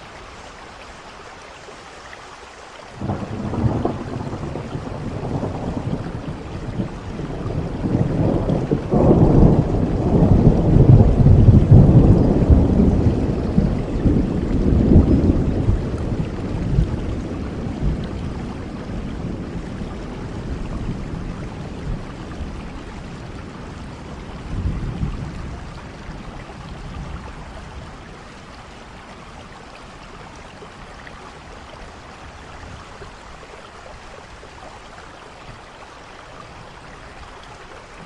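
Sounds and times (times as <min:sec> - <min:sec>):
steady rainfall: 0:00.0 - 0:38.0
low rumbles of thunder: 0:03.0 - 0:28.6.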